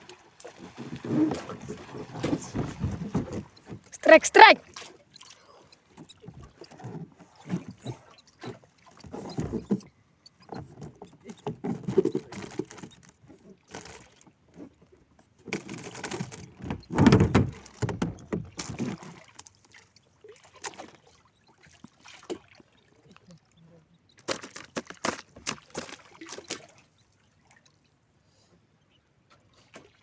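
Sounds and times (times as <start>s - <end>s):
water noise: 0.0s - 28.0s
knocks on wooden boat: 16.6s - 18.8s.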